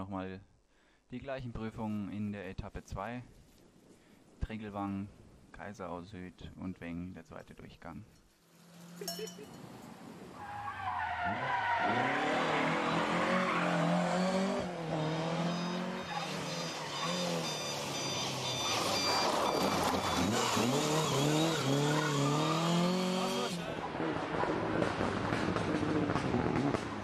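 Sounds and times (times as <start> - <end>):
rally car engine revving: 10.8 - 27.0.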